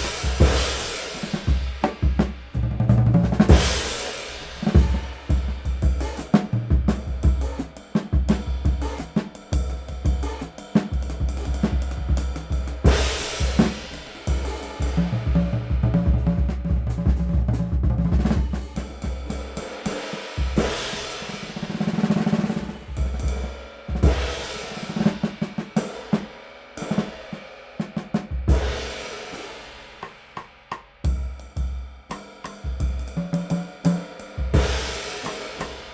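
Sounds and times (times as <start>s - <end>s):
snare drum hits: 0.0s - 2.4s
drum kit groove: 0.0s - 35.9s.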